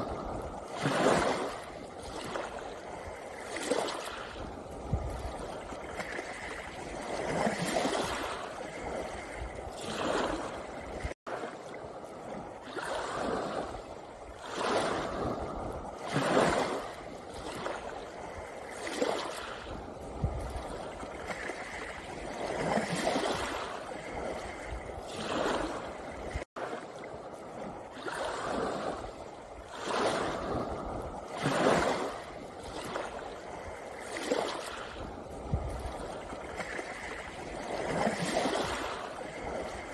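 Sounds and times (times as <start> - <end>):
waves washing over pebbles: 0.0 - 39.9.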